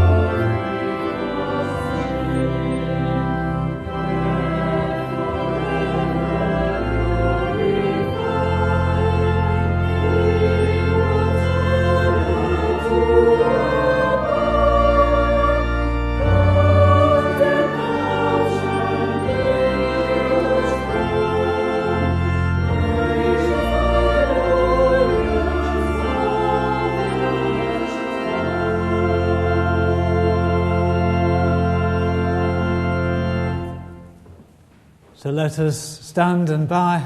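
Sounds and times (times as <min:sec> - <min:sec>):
choir singing a hymn: 0:00.0 - 0:34.1
organ bass notes: 0:00.0 - 0:34.2.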